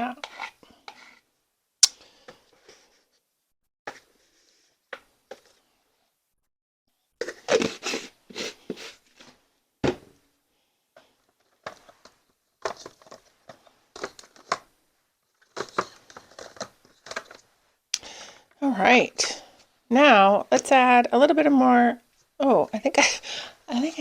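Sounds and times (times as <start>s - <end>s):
clicks scrapes and rustles: 0.2s - 1.2s, 11.0s - 14.7s, 15.3s - 17.5s.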